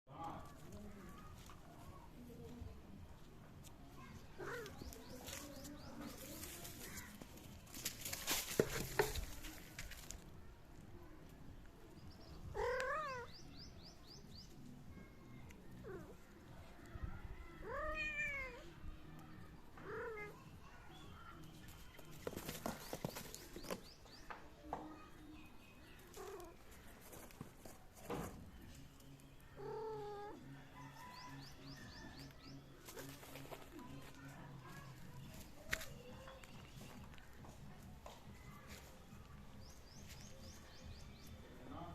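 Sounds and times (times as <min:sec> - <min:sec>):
cat scuffling and rustling: 0:04.4 - 0:10.2, 0:21.9 - 0:24.0, 0:26.0 - 0:28.9
cat meowing: 0:12.5 - 0:13.3, 0:17.6 - 0:18.6, 0:29.6 - 0:30.4.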